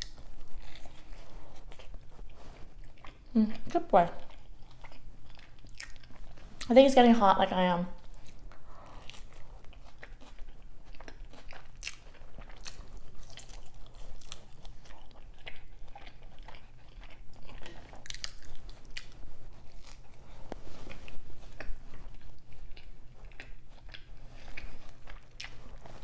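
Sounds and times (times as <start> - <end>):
person chewing a burger: 0.0 - 6.7, 8.0 - 26.0.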